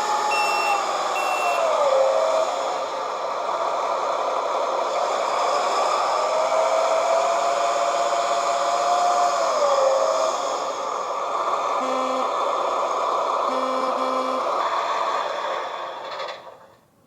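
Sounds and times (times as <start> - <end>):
motor whine: 0.0 - 2.8, 11.6 - 14.9
model tractor whirring: 0.0 - 16.8.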